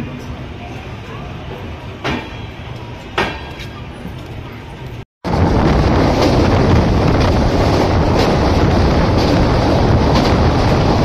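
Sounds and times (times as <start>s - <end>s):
train wheels rumbling on rails: 0.0s - 11.0s
wind rushing over microphone: 5.2s - 11.0s.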